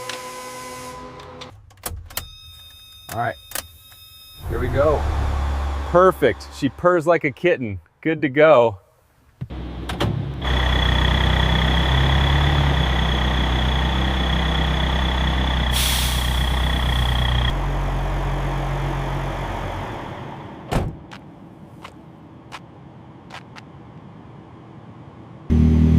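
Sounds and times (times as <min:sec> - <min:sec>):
truck engine idling: 0:09.5 - 0:20.7
high whine: 0:10.4 - 0:17.7
air brake hiss: 0:15.7 - 0:16.6.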